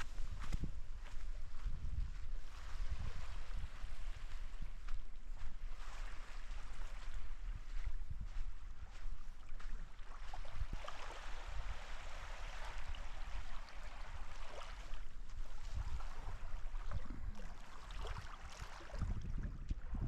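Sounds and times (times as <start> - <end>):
wind rumbling on microphone: 0.0 - 20.0
rushing water: 16.1 - 19.3.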